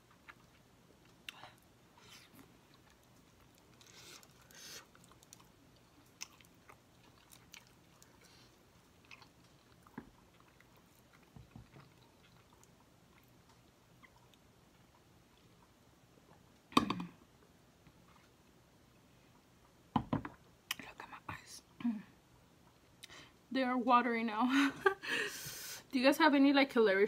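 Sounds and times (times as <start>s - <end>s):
person chewing food: 0.0s - 16.7s.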